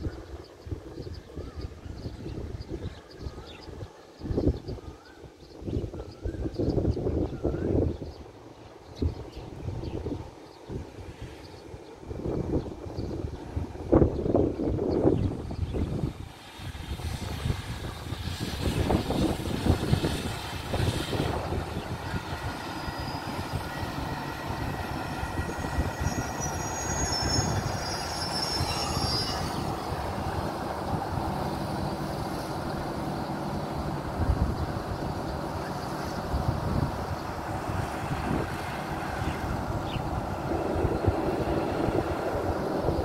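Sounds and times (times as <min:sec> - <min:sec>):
train wheels rumbling on track: 0:08.2 - 0:43.0
diesel locomotive engine running: 0:13.2 - 0:43.0
brake squeal: 0:25.4 - 0:29.9.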